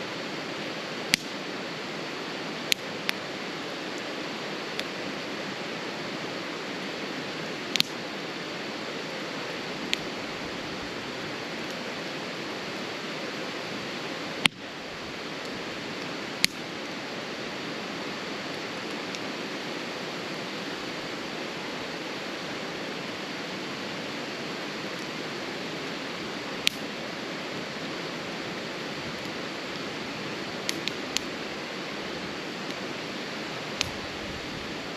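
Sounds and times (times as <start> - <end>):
fire rushing noise: 0.0 - 34.9
crackling wood pops: 1.1 - 1.4, 7.7 - 8.0, 16.4 - 16.6, 26.6 - 26.9, 30.6 - 31.3, 33.8 - 34.0.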